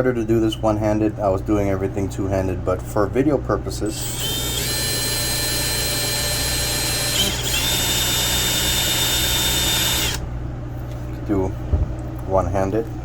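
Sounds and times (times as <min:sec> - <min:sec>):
drill grinding into slate: 0:03.9 - 0:10.2.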